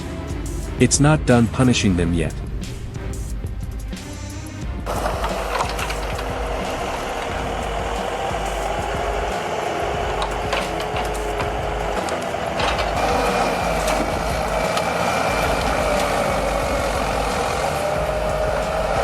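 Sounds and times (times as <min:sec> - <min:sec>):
heavy diesel machinery droning: 0:00.0 - 0:19.0
sharp metallic knocks: 0:04.9 - 0:19.0.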